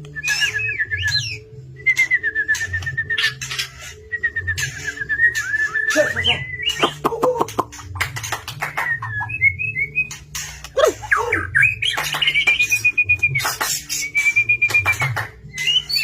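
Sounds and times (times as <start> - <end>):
songbird singing: 0.0 - 7.7, 8.5 - 16.0.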